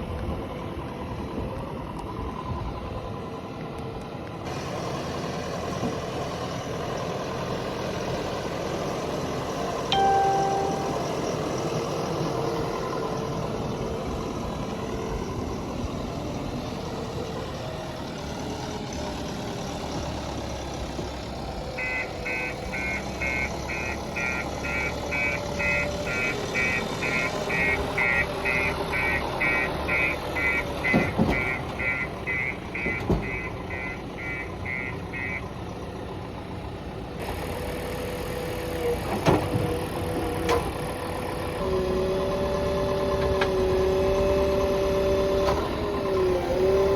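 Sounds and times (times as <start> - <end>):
heavy diesel machinery running: 0.0 - 46.9
reversing alarm beeping: 21.8 - 35.4.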